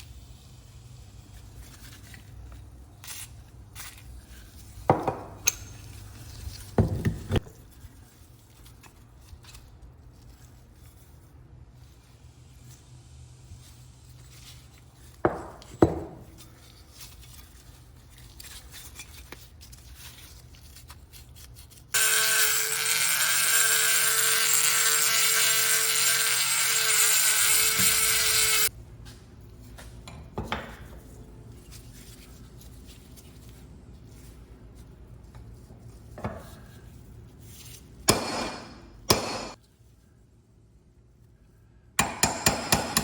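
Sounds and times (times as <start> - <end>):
small power tool running: 22.0 - 28.7.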